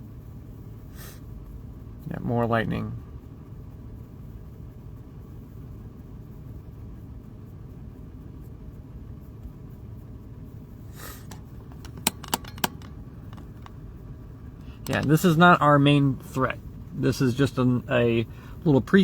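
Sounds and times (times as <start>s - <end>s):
car engine idling: 0.0s - 9.2s, 9.9s - 19.0s
short hiss: 10.9s - 11.4s
sharp clicks: 11.2s - 13.8s, 14.6s - 15.3s.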